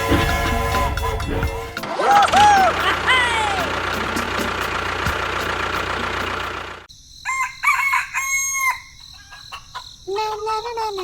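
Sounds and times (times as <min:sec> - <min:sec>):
rooster crowing: 0:07.2 - 0:09.6.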